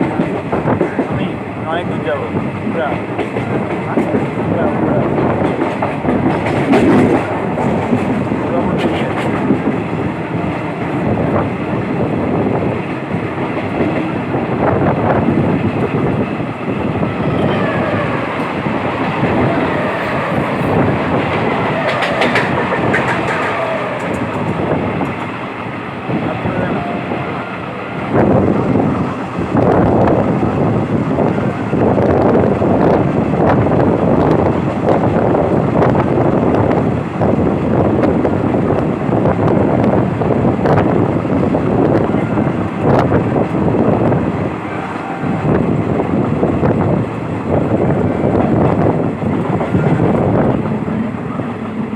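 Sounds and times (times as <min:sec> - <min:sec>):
train wheels clattering on rails: 0:00.0 - 0:17.0, 0:17.8 - 0:26.0.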